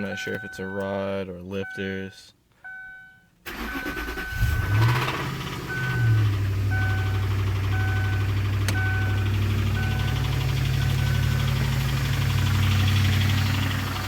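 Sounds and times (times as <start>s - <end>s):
dashboard warning chime beeping: 0.0s - 5.0s, 5.6s - 11.7s
car engine starting and idling: 3.4s - 14.0s.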